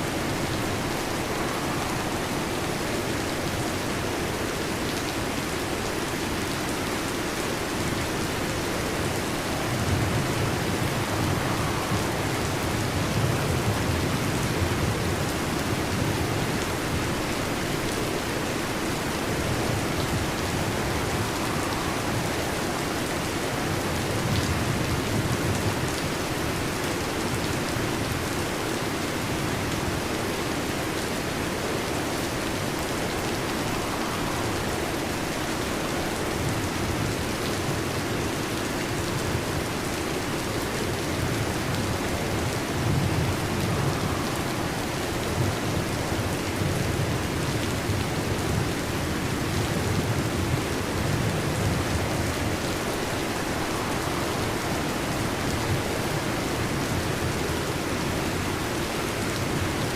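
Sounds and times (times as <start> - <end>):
heavy rain: 0.0 - 59.9
low thunder rumbling: 8.9 - 17.1, 41.2 - 58.1.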